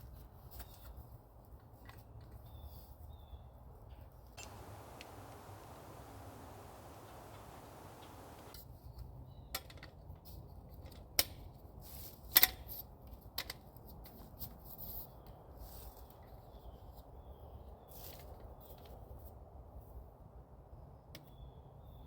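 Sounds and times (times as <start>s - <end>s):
faint rustling: 4.4s - 8.6s.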